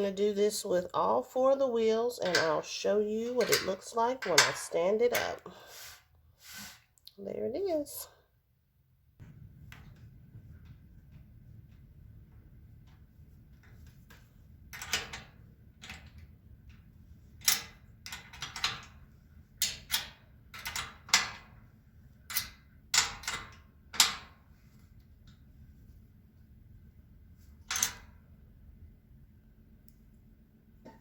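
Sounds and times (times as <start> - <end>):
metal shelving parts clanking: 2.0 - 5.6.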